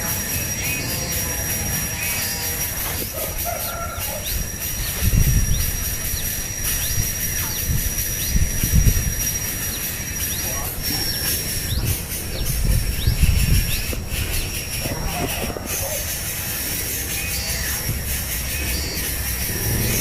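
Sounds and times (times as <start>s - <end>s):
continuous high whine: 0.0s - 20.0s
steady hiss: 0.0s - 20.0s
low rumbles: 10.8s - 20.0s.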